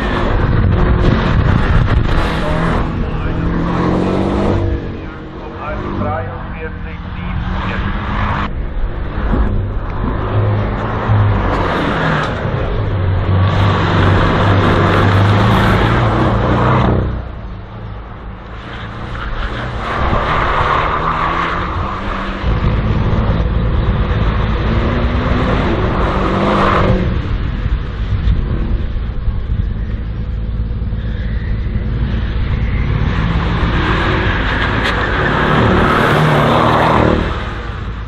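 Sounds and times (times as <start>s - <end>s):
race car engine revving: 0.0s - 38.0s.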